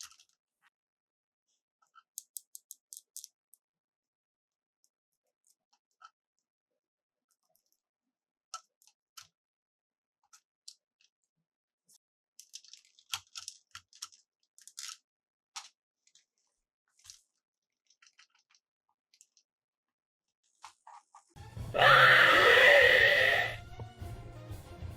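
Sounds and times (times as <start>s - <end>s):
plastic toy pieces clicking: 0.0s - 0.4s, 1.8s - 3.6s, 12.4s - 18.6s.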